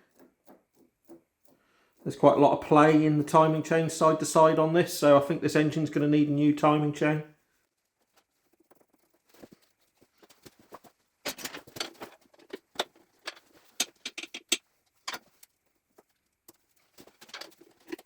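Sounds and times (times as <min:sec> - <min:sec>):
metal chain clinking and rattling: 0:08.4 - 0:15.5.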